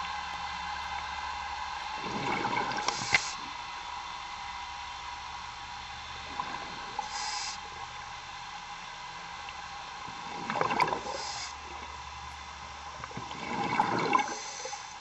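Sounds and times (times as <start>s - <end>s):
steady machinery hum: 0.0s - 15.0s
exhaled bubbles rushing: 2.0s - 3.1s, 10.2s - 11.8s, 13.0s - 14.8s
regulator inhalation hiss: 2.8s - 3.5s, 7.0s - 7.7s, 11.0s - 11.6s, 14.3s - 15.0s.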